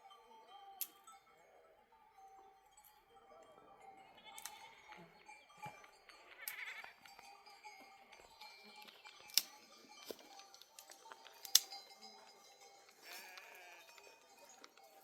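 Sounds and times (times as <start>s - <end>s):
sheep bleating: 4.2s - 5.3s, 6.3s - 7.0s, 13.0s - 14.2s
sharp clicks: 4.2s - 7.8s, 8.8s - 11.9s.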